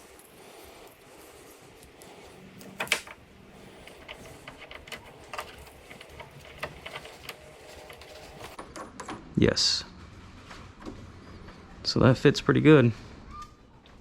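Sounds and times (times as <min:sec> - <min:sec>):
small clicks taps and scrapes: 0:01.8 - 0:09.2
latch clicking: 0:02.6 - 0:08.6.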